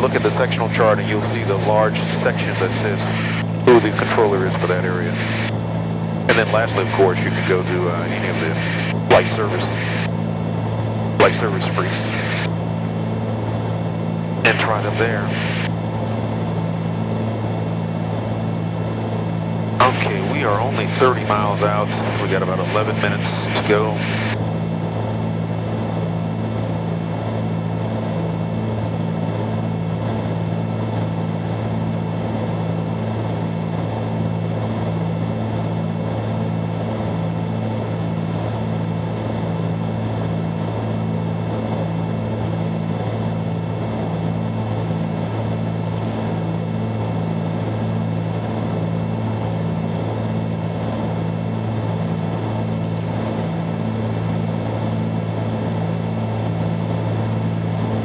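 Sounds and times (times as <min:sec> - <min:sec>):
twin propeller engines droning: 0:53.1 - 0:58.0.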